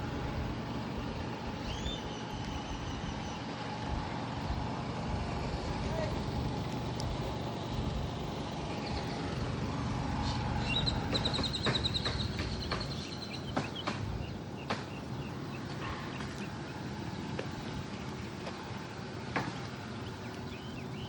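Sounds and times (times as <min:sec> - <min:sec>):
low outdoor rumble: 0:00.0 - 0:21.0
bird trilling: 0:01.6 - 0:03.6, 0:10.2 - 0:16.8.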